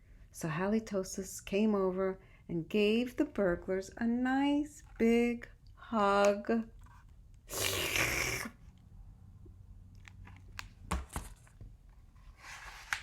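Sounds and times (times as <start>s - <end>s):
faint clicks of book handling: 11.9s - 13.0s
page turning paper rustle: 12.2s - 13.0s.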